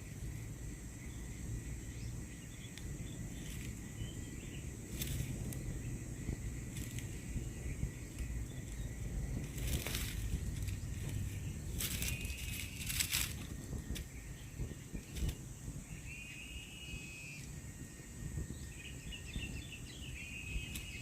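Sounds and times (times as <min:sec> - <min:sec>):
low rumble: 0:00.0 - 0:16.1
insects droning: 0:00.0 - 0:21.0.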